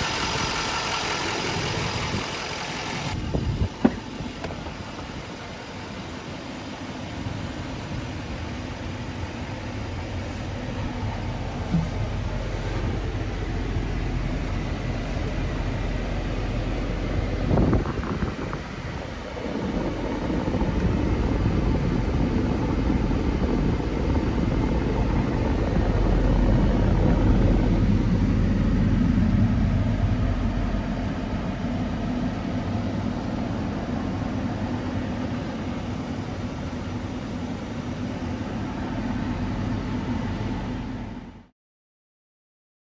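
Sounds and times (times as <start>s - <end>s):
diesel truck engine running: 0.0s - 41.5s.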